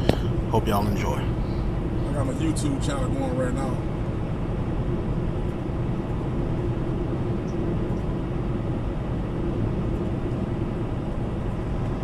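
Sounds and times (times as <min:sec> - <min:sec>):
truck engine rumble: 0:00.0 - 0:07.3
road noise: 0:00.0 - 0:07.4.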